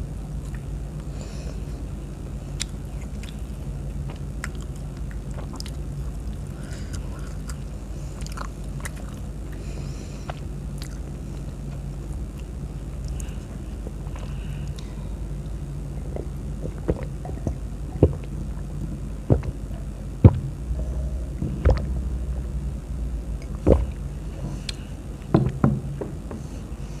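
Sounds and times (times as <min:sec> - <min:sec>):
steady low hum: 0:00.0 - 0:27.0
person chewing with crunches: 0:00.3 - 0:25.6.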